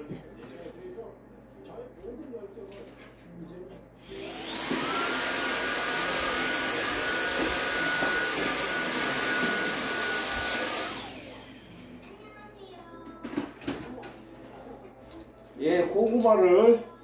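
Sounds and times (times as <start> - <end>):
high-speed electric motor whining: 4.0 - 11.7.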